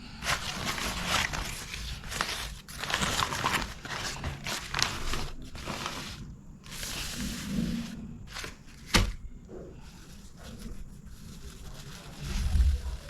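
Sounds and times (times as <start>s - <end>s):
crunching and crinkling while eating: 0.0s - 13.0s.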